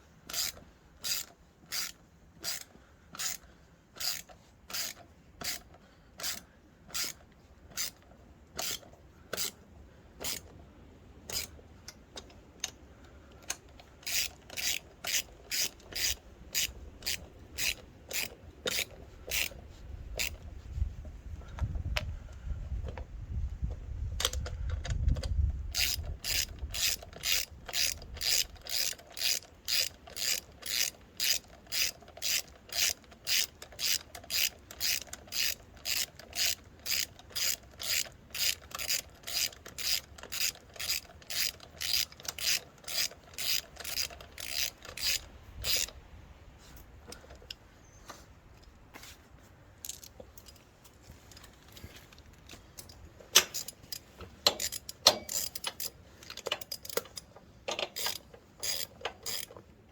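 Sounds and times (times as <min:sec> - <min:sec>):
ratchet wrench clicking: 0:00.3 - 0:09.6, 0:10.2 - 0:10.5, 0:11.3 - 0:12.8, 0:13.4 - 0:20.5, 0:24.2 - 0:46.0, 0:49.8 - 0:50.6, 0:52.8 - 0:59.7.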